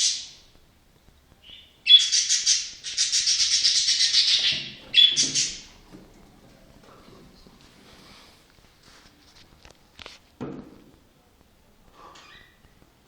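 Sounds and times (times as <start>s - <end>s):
budgerigar chattering: 1.4s - 5.7s.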